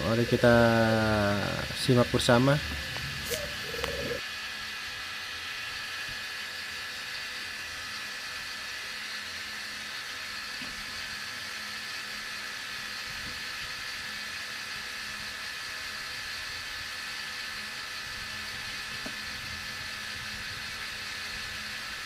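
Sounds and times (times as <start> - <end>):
held tones: 0.0 - 4.2
cotton candy machine whirring: 0.0 - 22.0.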